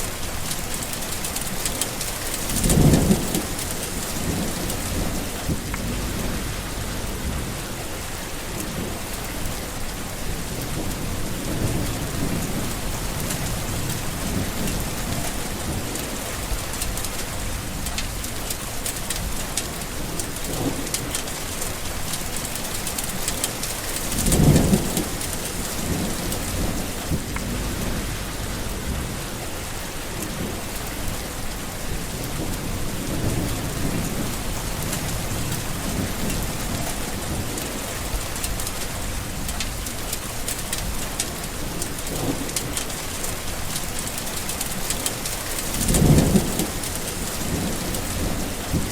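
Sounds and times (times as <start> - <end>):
steady rain: 0.0 - 48.9
rolling thunder: 2.4 - 9.6, 10.2 - 18.3, 23.0 - 39.9, 44.7 - 48.9
thunder clap: 2.5 - 7.6, 24.0 - 29.5, 31.9 - 39.6, 45.6 - 48.9.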